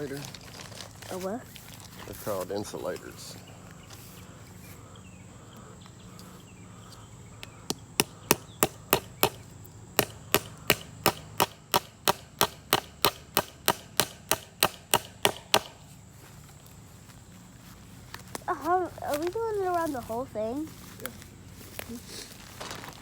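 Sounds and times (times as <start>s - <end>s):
hammer blows on wood: 7.6s - 16.0s.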